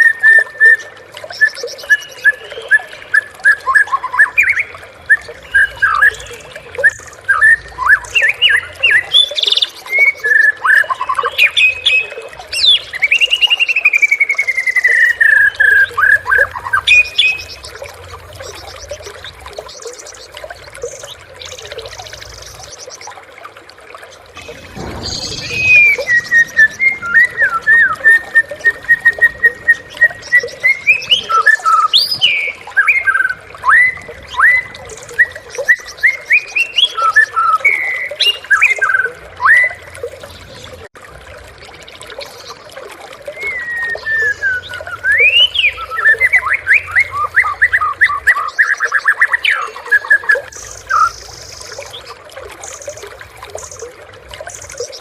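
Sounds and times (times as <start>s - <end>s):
bird singing whistled phrases: 0.0s - 17.8s, 24.4s - 39.9s, 43.3s - 51.3s.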